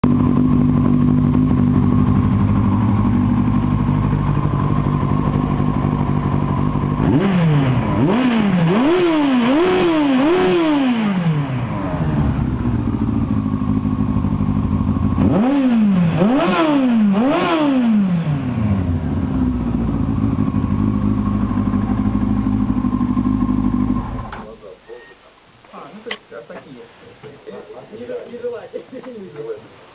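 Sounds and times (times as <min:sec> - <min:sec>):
motorcycle engine idling: 0:00.0 - 0:08.7, 0:11.2 - 0:16.3, 0:18.2 - 0:24.6.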